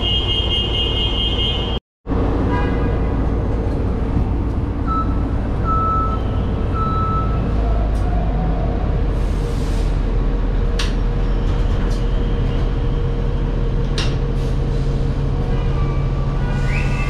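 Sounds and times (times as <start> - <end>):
rail car rumble: 2.1 - 17.0.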